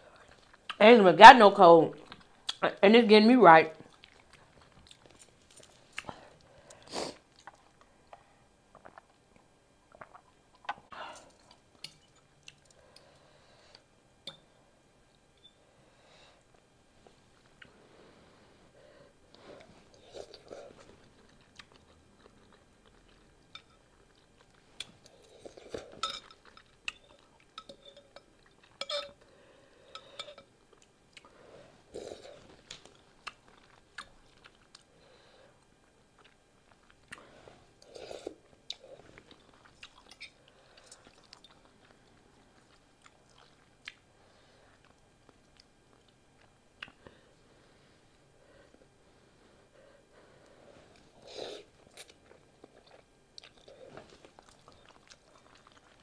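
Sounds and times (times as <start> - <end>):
chewing noodles: 3.8 - 12.8, 19.3 - 29.3, 31.9 - 34.9, 35.8 - 44.1, 51.0 - 56.0.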